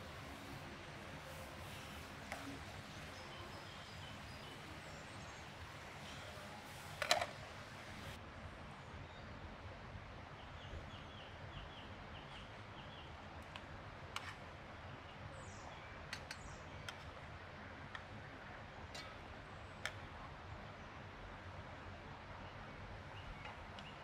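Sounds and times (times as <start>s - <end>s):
forest hiss: 0.0s - 8.2s
small bird chirping: 0.0s - 8.2s.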